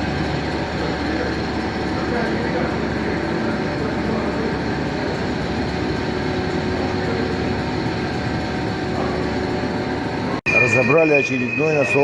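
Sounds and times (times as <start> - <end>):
machinery running with low pulsing: 0.0 - 12.0.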